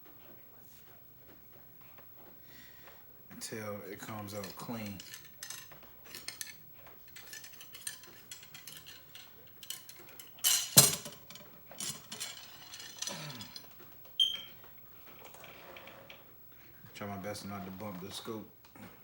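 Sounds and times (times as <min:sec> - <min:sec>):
cleaning rod rubbing in barrel: 0:04.0 - 0:10.0
metallic clinks: 0:04.3 - 0:14.4.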